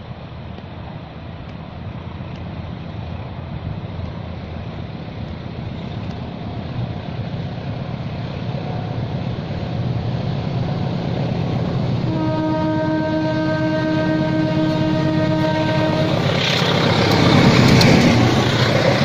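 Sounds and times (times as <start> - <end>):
train rumbling: 0.0 - 19.0
train horn: 12.1 - 16.6.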